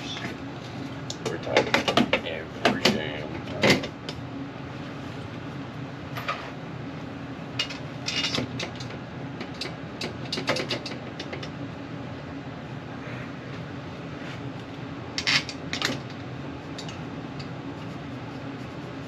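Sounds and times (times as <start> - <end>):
low hum of running unit: 0.0 - 19.0
metal door clicks and rattles: 9.5 - 11.4.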